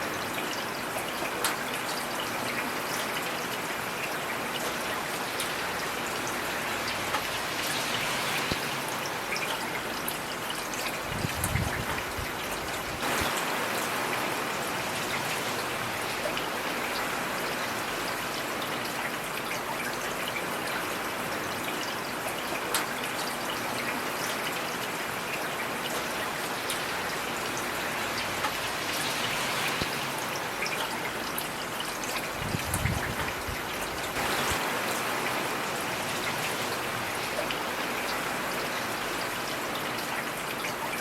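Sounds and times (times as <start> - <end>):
raindrops ticking on a surface: 0.0 - 41.0
heavy rain hissing: 11.0 - 18.3, 26.2 - 39.5.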